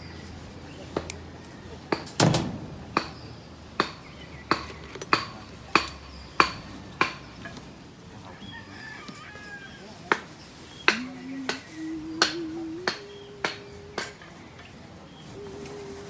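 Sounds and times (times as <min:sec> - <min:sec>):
hammer blows: 0:01.9 - 0:07.2, 0:10.9 - 0:14.3.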